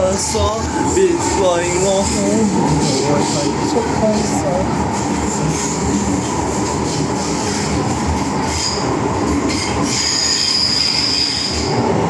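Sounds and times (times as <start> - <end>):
train wheels and motors rumbling: 0.0 - 12.0
train wheels squealing on rail: 5.1 - 12.0.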